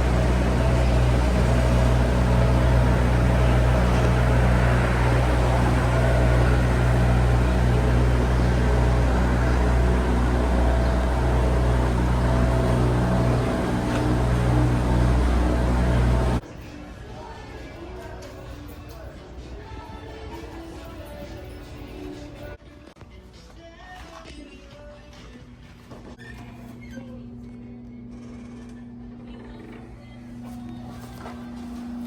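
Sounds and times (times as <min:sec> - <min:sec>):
low mechanical drone: 0:00.0 - 0:16.5.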